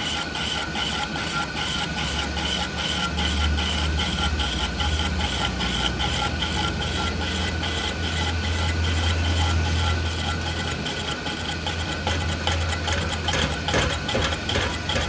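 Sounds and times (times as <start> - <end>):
sharp metallic knocks: 12.0 - 15.0.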